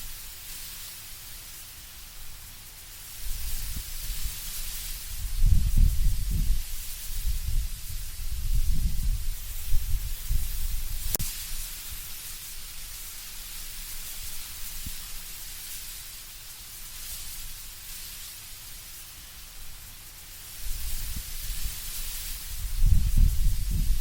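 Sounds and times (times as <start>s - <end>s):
wind rustling tree leaves: 0.0s - 24.0s
low wind rumble: 4.9s - 11.2s, 22.4s - 24.0s.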